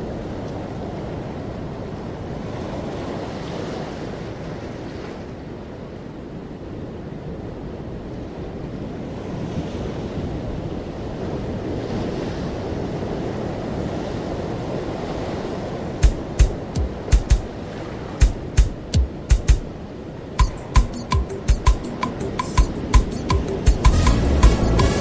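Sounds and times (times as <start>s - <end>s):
wind buffeting the microphone: 0.0s - 20.4s
rushing wind: 0.0s - 25.0s
surf: 11.2s - 25.0s
sharp knocks: 16.0s - 17.5s, 18.2s - 19.7s, 20.4s - 25.0s.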